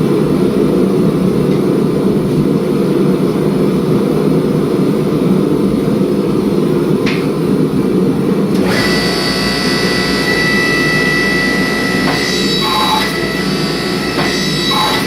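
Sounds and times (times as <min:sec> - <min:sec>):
high-pitched motor whine: 0:08.6 - 0:15.0.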